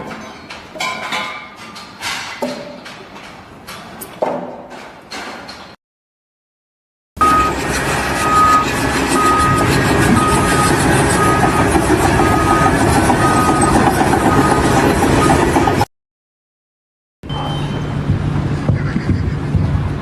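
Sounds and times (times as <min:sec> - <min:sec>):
reversing alarm beeping: 0:07.2 - 0:15.8, 0:17.2 - 0:18.0
heavy vehicle engine running: 0:07.2 - 0:15.9, 0:17.3 - 0:20.0.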